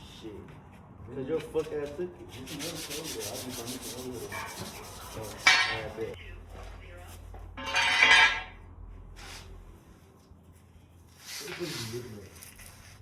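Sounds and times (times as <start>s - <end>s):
metal rubbing: 2.4s - 6.2s
metal parts and tools clattering: 7.6s - 8.6s.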